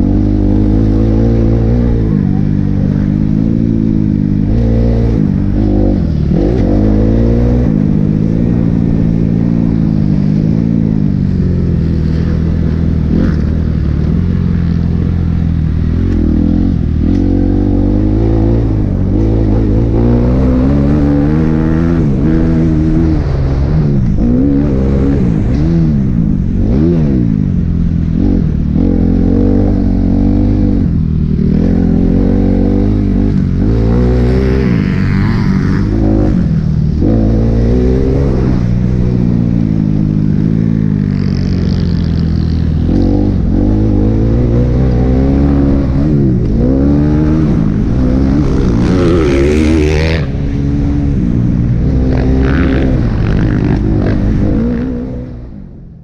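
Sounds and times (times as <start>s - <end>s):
motocross engine revving: 40.3s - 51.2s, 51.8s - 55.2s.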